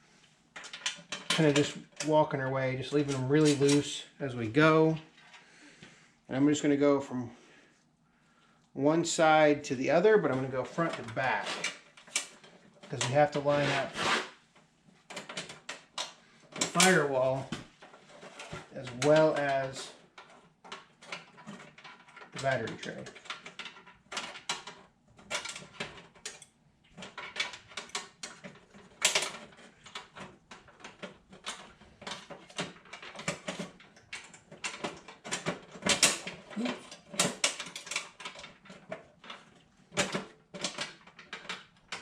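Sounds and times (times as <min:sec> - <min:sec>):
metal parts clinking and knocking: 0:15.1 - 0:42.0.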